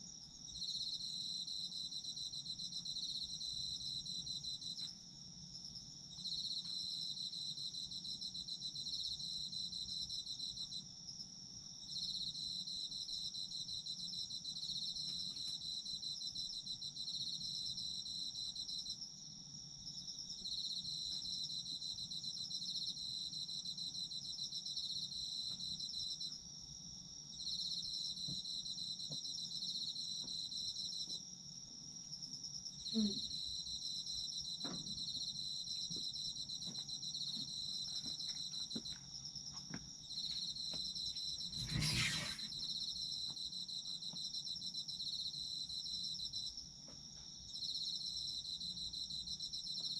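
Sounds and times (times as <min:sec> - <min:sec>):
insect steady high trill: 0:35.4 - 0:46.6
insect pulsing trills: 0:41.1 - 0:42.9.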